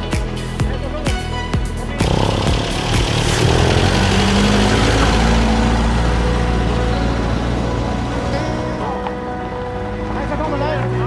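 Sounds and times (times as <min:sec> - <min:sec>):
car engine running: 0:02.0 - 0:09.0.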